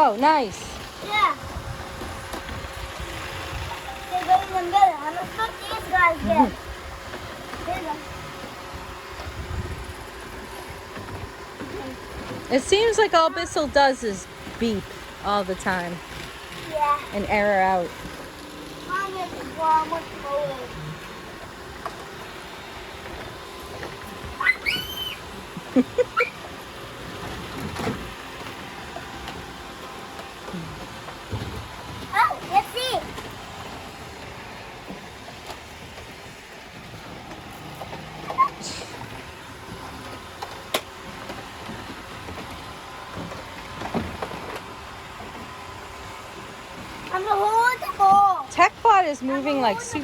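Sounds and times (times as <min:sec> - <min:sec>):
robot vacuums running: 0:00.0 - 0:50.0.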